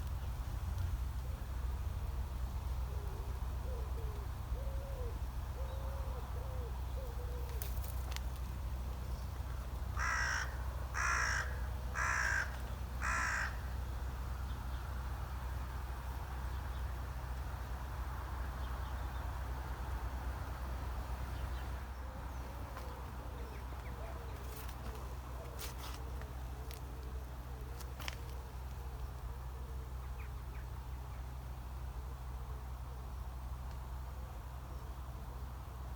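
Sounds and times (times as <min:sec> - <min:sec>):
steady low hum: 0:00.0 - 0:35.9
faint birdsong: 0:02.8 - 0:33.6
crow cawing: 0:10.0 - 0:13.8.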